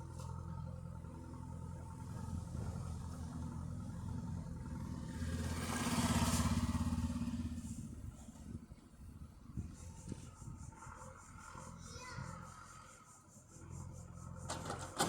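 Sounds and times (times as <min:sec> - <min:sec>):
tractor engine passing: 0:00.0 - 0:13.0, 0:13.6 - 0:15.0.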